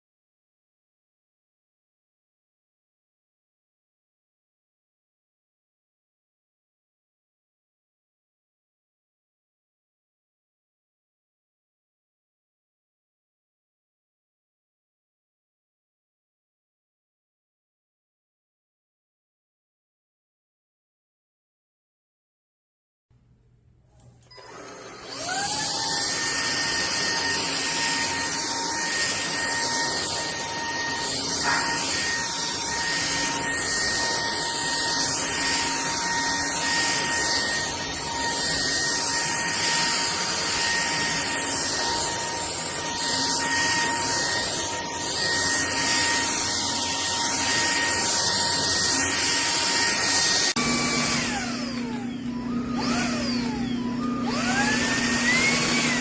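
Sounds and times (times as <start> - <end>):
stick vacuum motor whine: 24.2 - 56.0.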